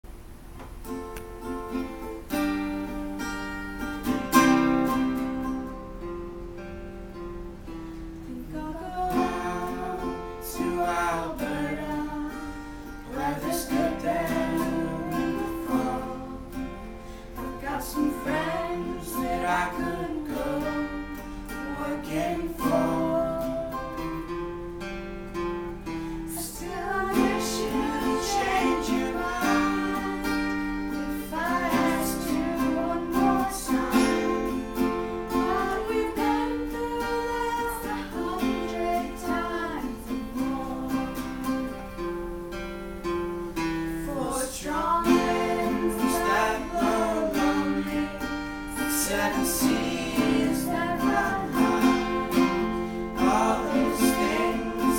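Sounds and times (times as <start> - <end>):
acoustic guitar strumming: 0.2 - 54.9
person singing: 8.3 - 24.3, 26.2 - 41.7, 44.0 - 54.9.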